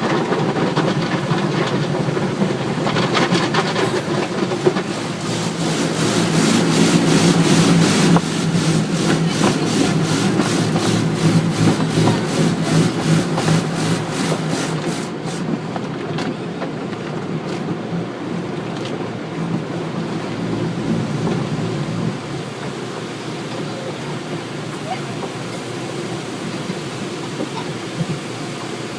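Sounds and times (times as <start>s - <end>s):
car wash motor hum: 0.0s - 28.9s
water spray rushing: 1.8s - 15.6s, 19.7s - 28.9s.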